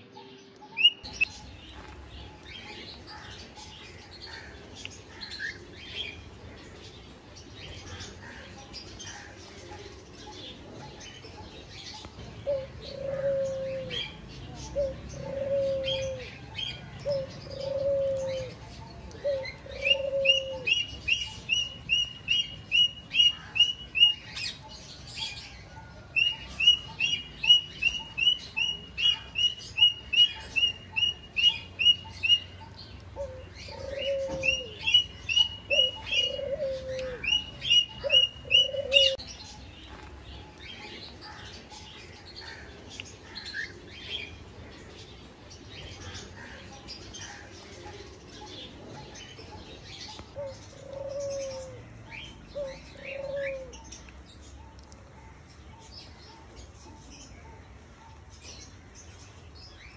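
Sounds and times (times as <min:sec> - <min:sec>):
bird chirping: 0:00.0 - 0:59.9
low cooing notes: 0:12.4 - 0:16.4, 0:19.2 - 0:21.2, 0:33.2 - 0:39.3.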